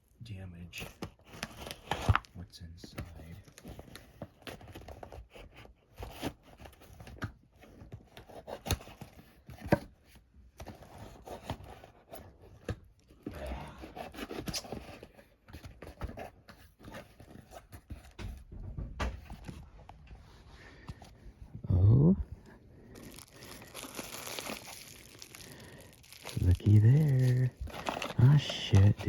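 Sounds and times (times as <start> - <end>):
cardboard tearing: 1.0 - 2.3, 22.9 - 29.0.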